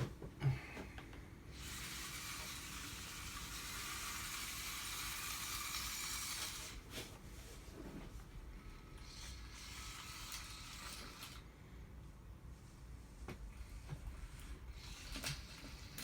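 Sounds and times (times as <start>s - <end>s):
small electric motors whirring: 1.5s - 7.0s, 9.0s - 11.4s, 14.2s - 16.0s.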